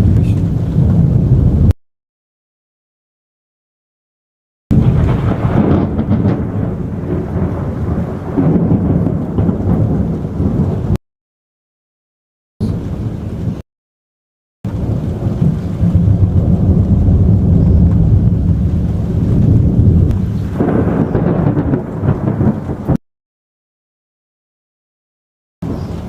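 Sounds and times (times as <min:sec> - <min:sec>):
thunder rumbling: 0:00.0 - 0:01.8, 0:04.7 - 0:11.0, 0:12.6 - 0:13.6, 0:14.7 - 0:23.0, 0:25.6 - 0:26.0.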